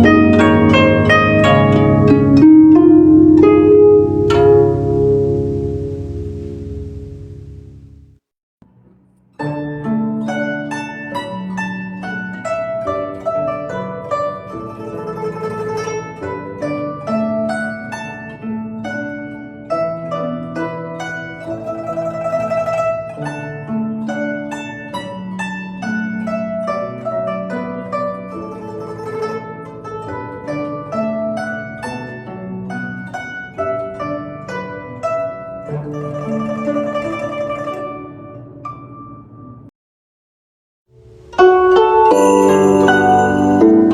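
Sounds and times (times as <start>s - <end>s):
plucked zither melody: 0.0s - 39.7s, 40.9s - 43.9s
low piano notes: 1.3s - 8.1s, 41.0s - 43.9s.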